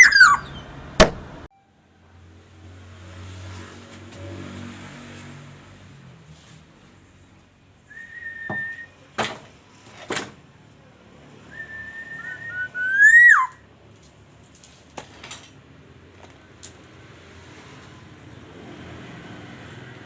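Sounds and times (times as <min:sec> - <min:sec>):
oriole fluty whistled calls: 0:00.0 - 0:01.4, 0:07.9 - 0:09.0, 0:11.5 - 0:13.6
sharp clicks: 0:00.0 - 0:01.5.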